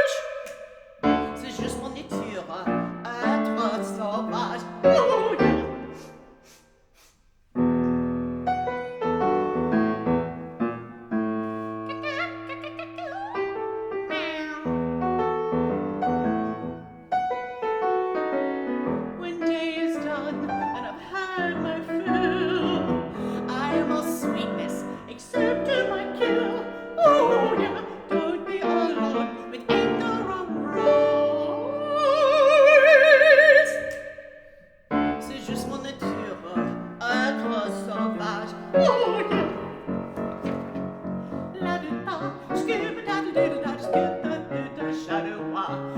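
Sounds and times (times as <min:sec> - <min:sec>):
woman singing wordless phrases: 0:00.0 - 0:06.1, 0:11.8 - 0:14.9, 0:19.1 - 0:34.4, 0:35.0 - 0:40.1, 0:41.5 - 0:45.9
piano accompaniment: 0:00.9 - 0:06.5, 0:07.5 - 0:45.9.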